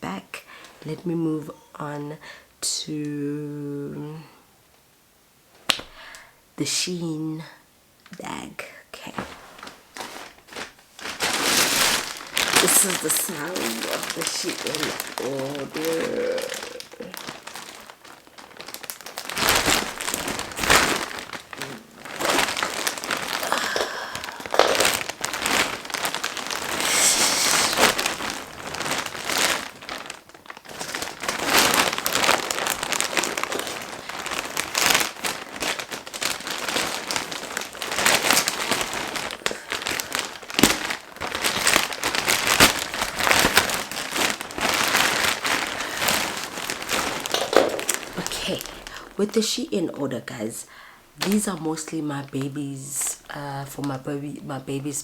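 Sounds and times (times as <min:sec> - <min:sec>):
plastic bag crinkling: 0:09.0 - 0:55.0.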